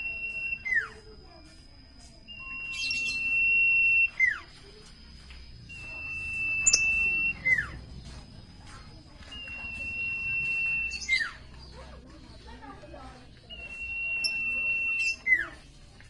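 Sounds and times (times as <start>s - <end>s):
bird singing high whistle: 0.0s - 1.1s, 2.3s - 4.5s, 5.7s - 7.8s, 9.2s - 11.4s, 13.5s - 15.6s.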